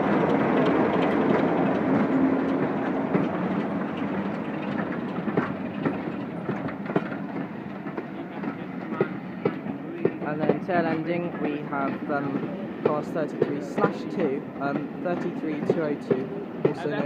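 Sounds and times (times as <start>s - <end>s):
diesel train rumbling past: 0.0s - 17.0s
wheels clicking over rail joints: 0.0s - 17.0s.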